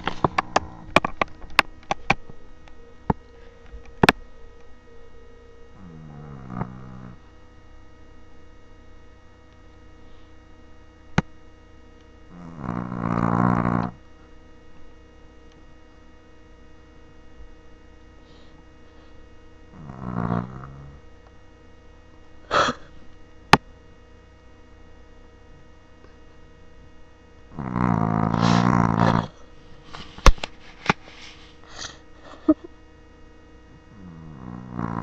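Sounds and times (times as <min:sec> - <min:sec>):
dog snoring: 0:00.0 - 0:01.1, 0:05.7 - 0:07.3, 0:12.3 - 0:14.0, 0:19.7 - 0:21.0, 0:27.5 - 0:30.1, 0:33.9 - 0:35.0.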